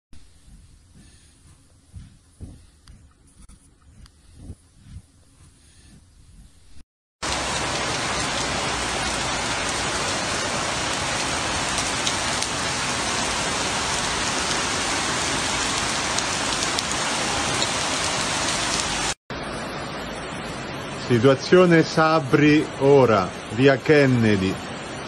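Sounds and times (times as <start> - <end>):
heavy rain falling: 7.2 - 25.0.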